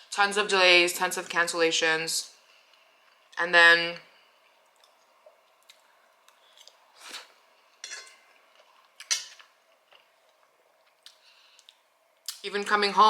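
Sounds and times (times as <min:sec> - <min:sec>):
cutlery clinking on dishware: 0:07.8 - 0:08.2, 0:09.0 - 0:09.4.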